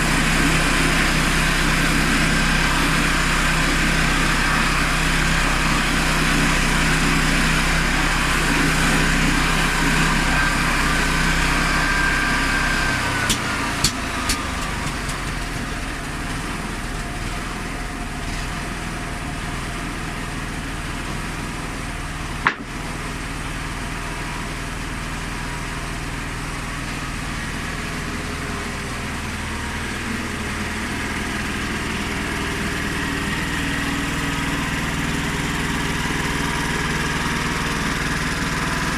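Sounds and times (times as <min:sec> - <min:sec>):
high whine: 0:00.0 - 0:15.0
petrol engine running: 0:00.0 - 0:38.9
sharp knock: 0:22.5 - 0:22.7.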